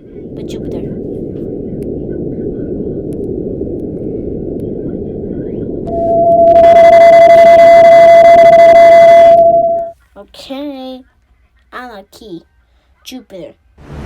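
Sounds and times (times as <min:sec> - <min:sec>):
low rumbling noise: 0:00.0 - 0:09.9
hissy static-like noise: 0:00.0 - 0:14.0
loud steady beep-like tone: 0:05.7 - 0:09.9.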